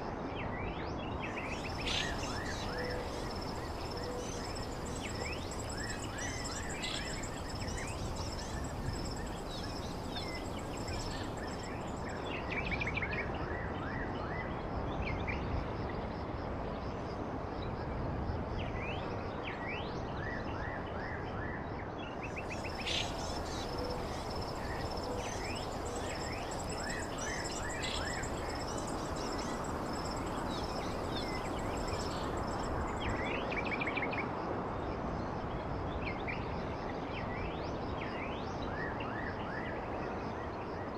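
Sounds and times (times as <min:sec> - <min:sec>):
faint high-pitched whine: 0:00.0 - 0:40.9
birds chirping and trilling: 0:01.4 - 0:12.1, 0:22.4 - 0:33.2.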